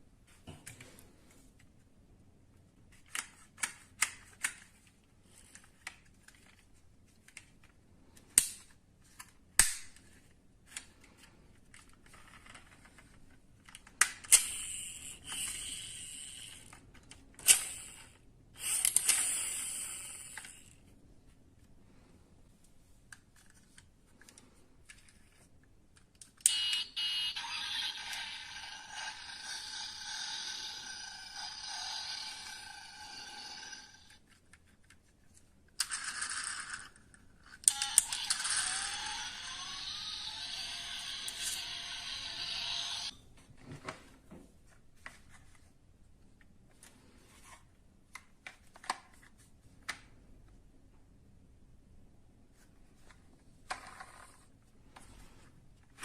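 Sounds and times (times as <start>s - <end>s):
toy cars scraping or rolling: 26.6s - 34.2s, 35.8s - 43.1s.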